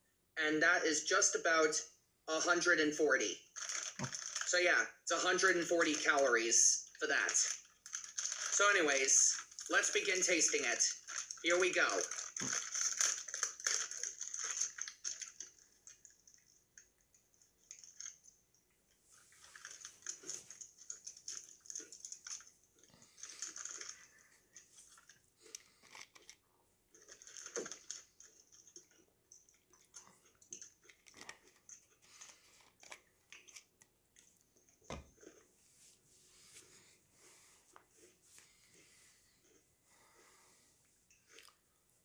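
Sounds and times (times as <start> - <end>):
cookie crunching when chewed: 3.6 - 4.6, 7.0 - 18.2, 19.4 - 35.5
plastic wrapper crinkling: 3.6 - 4.6, 6.8 - 16.4, 19.4 - 22.5, 23.2 - 24.1, 27.0 - 28.8.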